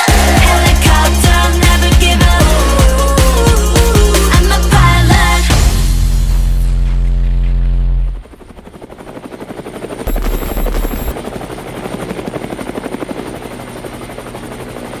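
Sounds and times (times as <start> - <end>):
helicopter rotor blades chopping: 8.2 - 15.0.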